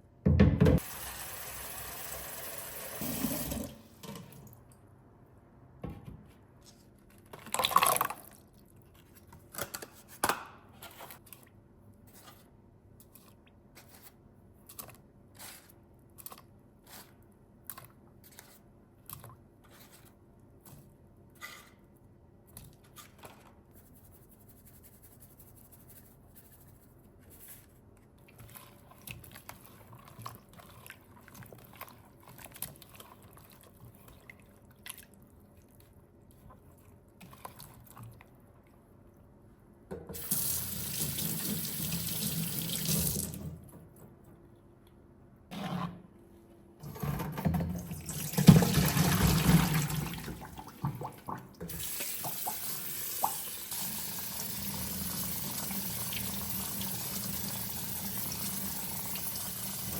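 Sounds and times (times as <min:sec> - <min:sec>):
kitchen tap running: 0:00.8 - 0:04.2, 0:40.1 - 0:43.5, 0:46.9 - 0:59.9.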